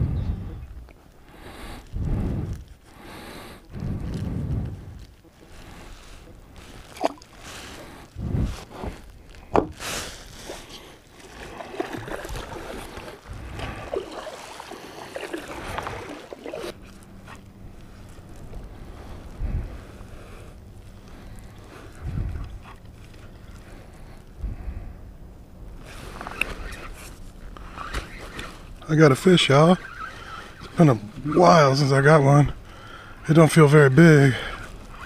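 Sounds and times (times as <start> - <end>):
wind gusting on microphone: 0.0 - 0.9, 1.9 - 2.8, 3.7 - 5.2, 7.7 - 10.3, 11.6 - 14.3, 15.1 - 20.1, 21.2 - 22.9
rustling wash: 0.0 - 35.0.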